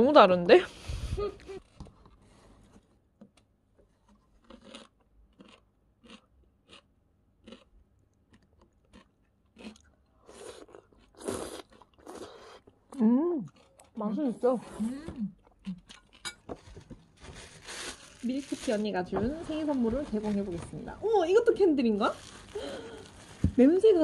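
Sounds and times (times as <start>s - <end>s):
crunchy chewing: 3.8s - 12.8s, 13.4s - 14.0s, 15.3s - 18.8s, 22.1s - 23.4s.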